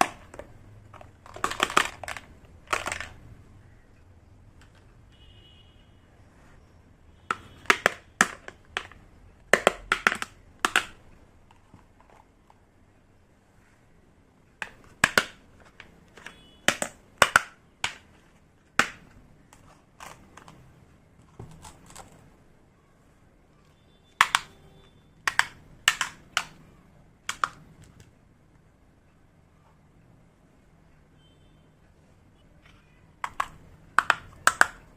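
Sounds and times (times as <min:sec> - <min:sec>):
toy pieces clicking and tapping: 0:00.0 - 0:03.2, 0:07.3 - 0:12.6, 0:14.6 - 0:18.1, 0:18.8 - 0:20.6, 0:24.2 - 0:24.6, 0:25.2 - 0:26.6, 0:27.2 - 0:28.1, 0:33.2 - 0:34.9.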